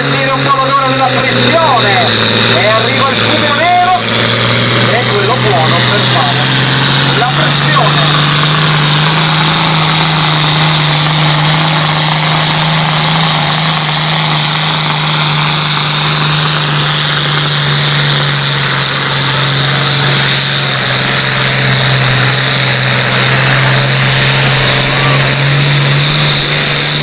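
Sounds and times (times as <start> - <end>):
high whine: 0.0 - 27.0
tractor engine at high revs: 0.0 - 27.0.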